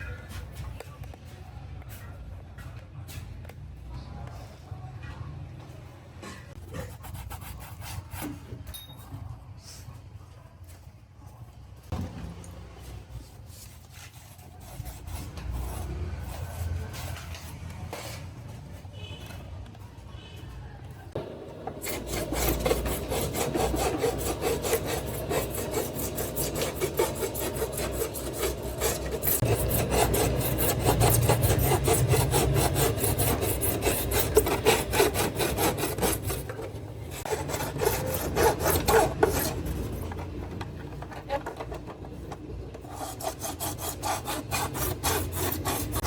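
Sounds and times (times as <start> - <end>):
rubbing strokes on plastic: 21.7 - 40.4.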